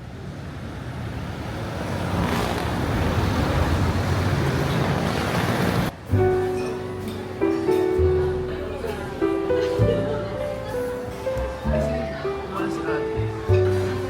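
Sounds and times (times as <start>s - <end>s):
steady rushing noise: 0.0s - 6.1s
music with plucked notes: 6.0s - 14.0s.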